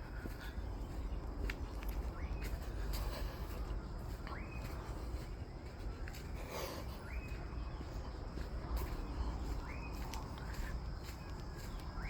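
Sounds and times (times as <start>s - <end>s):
footsteps on forest path: 0.0s - 12.0s.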